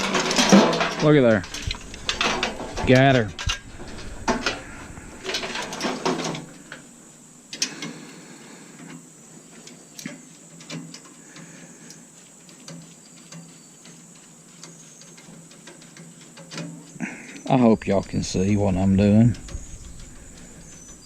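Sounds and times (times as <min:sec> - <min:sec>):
metal parts rattling: 0:00.0 - 0:06.8, 0:12.6 - 0:21.0.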